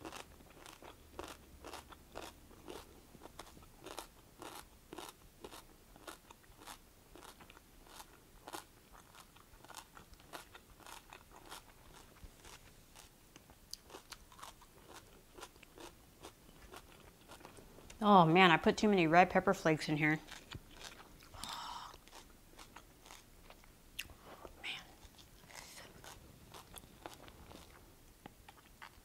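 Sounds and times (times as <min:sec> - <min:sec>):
crunchy chewing: 0:00.0 - 0:18.0, 0:20.2 - 0:29.0.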